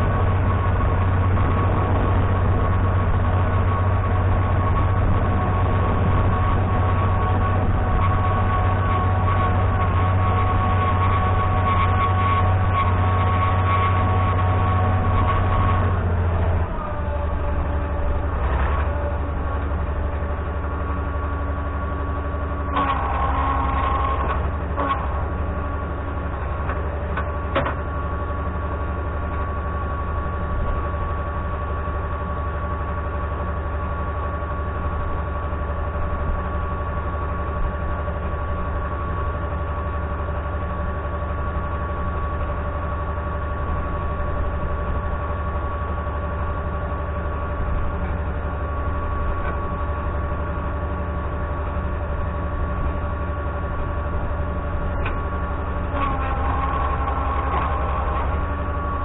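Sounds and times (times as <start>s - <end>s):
diesel engine deep rumble: 0.0s - 59.0s
steady engine whine: 0.0s - 59.0s.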